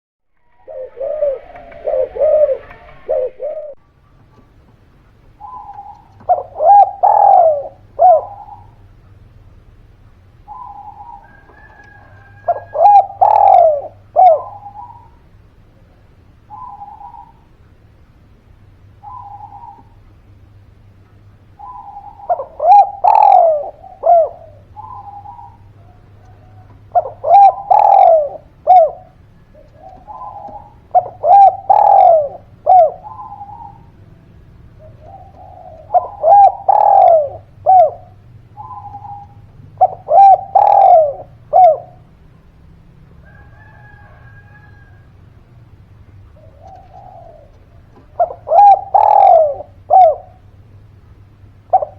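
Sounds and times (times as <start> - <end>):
dove cooing: 0.4 - 4.5, 5.4 - 9.0, 10.5 - 17.5, 19.0 - 20.1, 21.6 - 42.2, 46.2 - 50.6, 51.5 - 51.9.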